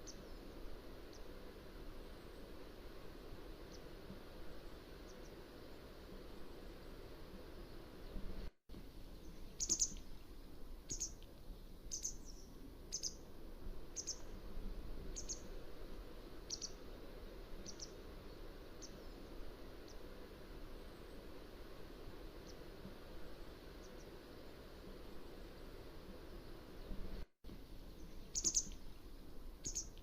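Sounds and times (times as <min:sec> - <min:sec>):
steady background hiss: 0:00.0 - 0:30.0
bird calling sharp high calls: 0:09.6 - 0:10.0, 0:16.5 - 0:16.8, 0:28.3 - 0:28.8, 0:29.6 - 0:30.0.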